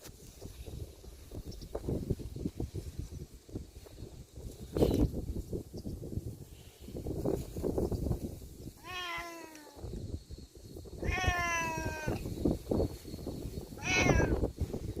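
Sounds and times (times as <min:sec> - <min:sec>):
cat meowing: 0:08.8 - 0:09.8, 0:11.0 - 0:12.2, 0:13.8 - 0:14.4.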